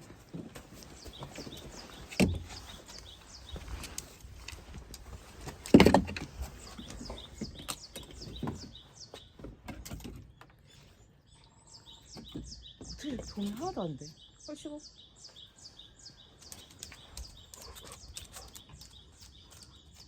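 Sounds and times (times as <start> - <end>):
firewood knocking and thumping: 0.0 - 2.8, 4.5 - 10.4
small birds chirping: 0.0 - 20.0.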